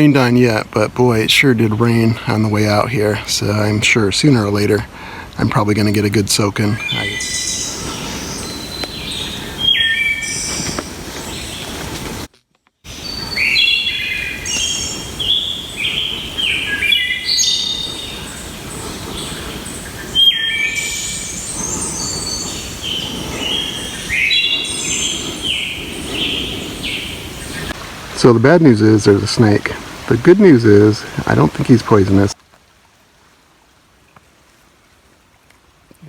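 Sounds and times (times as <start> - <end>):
songbirds singing: 5.9 - 12.3, 12.9 - 32.4
low background hush: 12.9 - 32.4.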